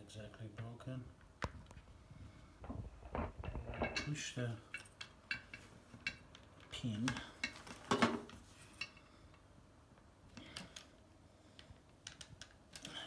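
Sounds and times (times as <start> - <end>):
plastic and metal parts clattering: 7.0 - 8.8.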